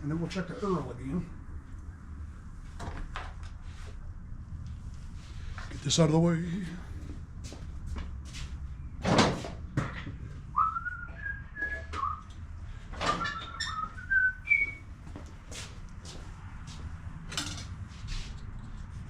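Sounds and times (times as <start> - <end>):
man whistling a tune: 10.5 - 12.3, 13.1 - 14.8.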